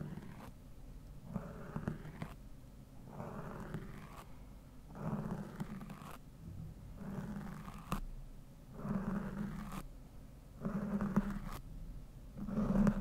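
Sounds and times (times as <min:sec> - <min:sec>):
brush stroking a microphone: 0:10.6 - 0:11.6, 0:12.4 - 0:13.0.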